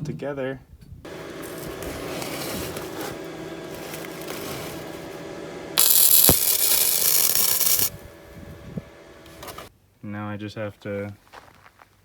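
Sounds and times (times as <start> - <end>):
welding arc crackling hiss: 1.1 - 9.5
workshop noise: 1.1 - 9.7.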